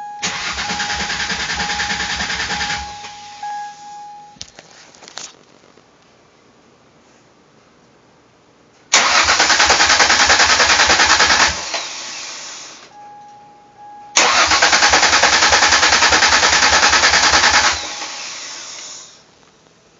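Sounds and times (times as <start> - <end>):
engine starter cranking: 0.2 - 3.6, 9.0 - 12.7, 14.2 - 19.0.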